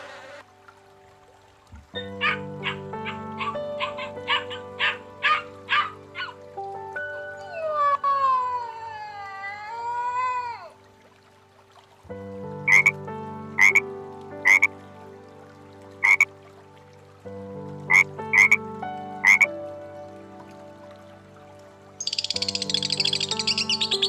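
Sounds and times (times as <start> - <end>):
frog croaking: 12.7 - 13.0, 13.6 - 13.8, 14.4 - 14.7, 16.0 - 16.3, 17.9 - 18.6, 19.2 - 19.5, 22.0 - 24.0.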